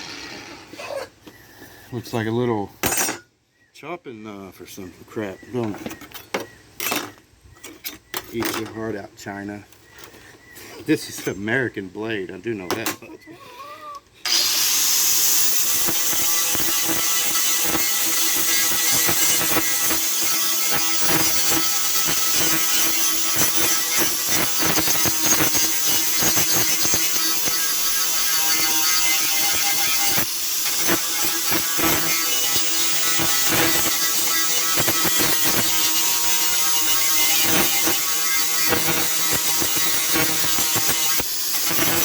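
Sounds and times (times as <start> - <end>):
electric grinder grinding metal: 0.0 - 0.8, 14.3 - 42.0.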